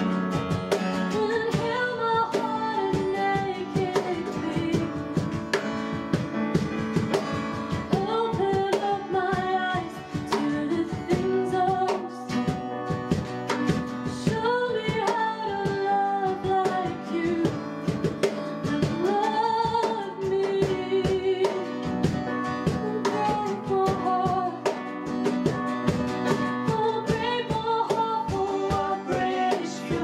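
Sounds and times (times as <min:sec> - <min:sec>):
strummed guitar chords: 0:00.0 - 0:30.0
person singing: 0:01.1 - 0:05.1, 0:07.8 - 0:12.5, 0:14.1 - 0:17.7, 0:18.7 - 0:21.8, 0:22.7 - 0:24.8, 0:26.2 - 0:30.0.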